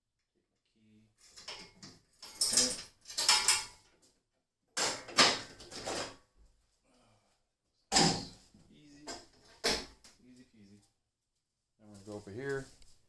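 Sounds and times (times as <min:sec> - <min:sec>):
metal clanking and rattling: 0:01.4 - 0:03.8.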